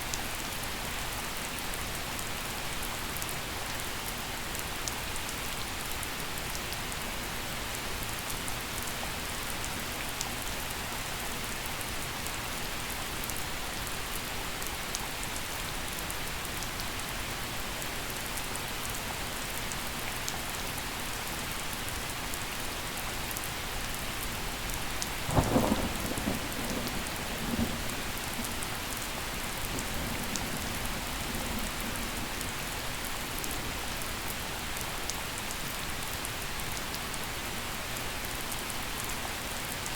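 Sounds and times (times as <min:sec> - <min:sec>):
gentle rain falling: 0:00.0 - 0:39.9
thunder clap and rumble: 0:25.2 - 0:32.7.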